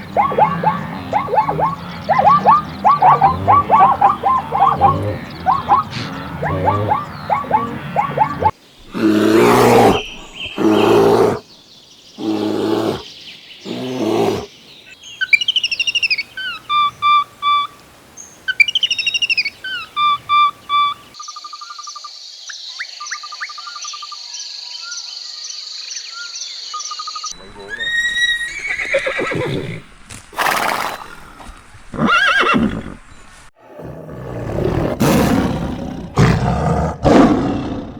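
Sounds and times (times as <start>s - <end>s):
loud rough animal calls: 0.0s - 11.4s, 12.2s - 13.0s
short pulsing animal calls: 0.0s - 11.4s, 18.5s - 21.2s
faint chirps: 0.0s - 29.4s
bird singing whistled phrase: 18.5s - 21.1s.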